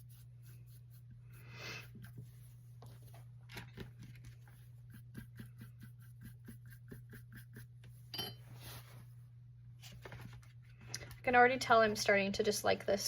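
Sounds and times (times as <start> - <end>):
paintbrush scrubbing canvas: 0.0 - 3.2, 4.0 - 8.0.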